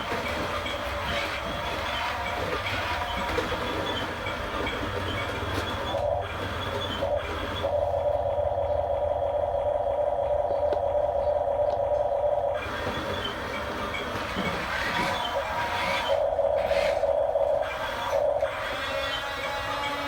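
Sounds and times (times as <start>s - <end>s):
toy electric motors whining: 0.0s - 8.4s, 12.5s - 20.0s.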